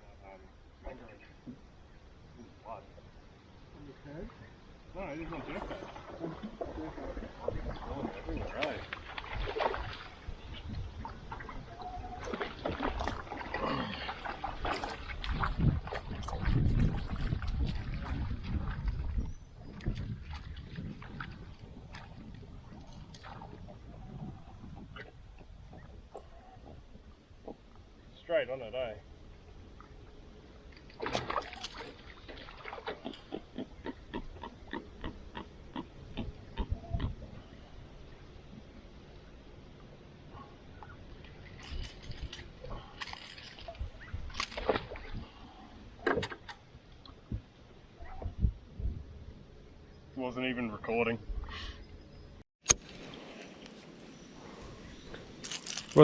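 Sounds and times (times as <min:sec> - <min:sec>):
light water sounds: 0:02.2 - 0:33.5, 0:37.4 - 0:48.4
lure splashing in water: 0:31.0 - 0:33.3.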